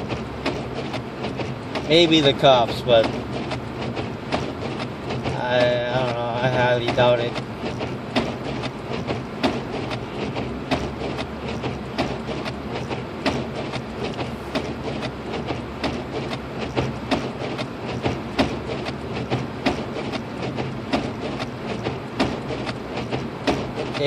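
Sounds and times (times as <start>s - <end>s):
car engine and tyre hum: 0.0s - 24.0s
irregular clicks and knocks: 0.0s - 24.0s.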